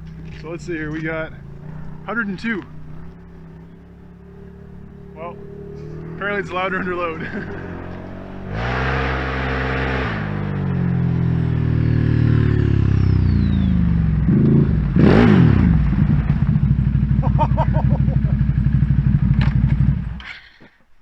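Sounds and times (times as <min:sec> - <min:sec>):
engine idling lumpily: 0:00.0 - 0:07.7, 0:15.7 - 0:20.3
atv engine revving: 0:00.0 - 0:20.4.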